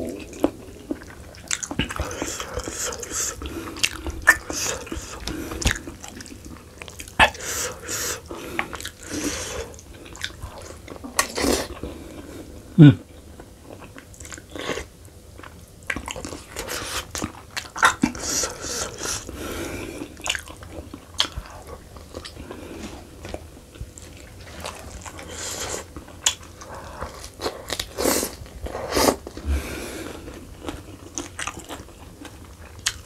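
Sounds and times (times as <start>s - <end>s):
man chewing and biting: 0.1s - 11.9s, 20.1s - 22.6s, 30.3s - 33.0s.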